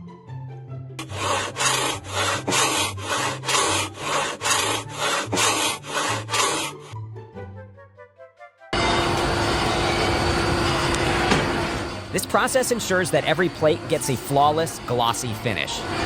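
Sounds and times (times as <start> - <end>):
rhythmic rasping strokes: 1.0 - 7.0.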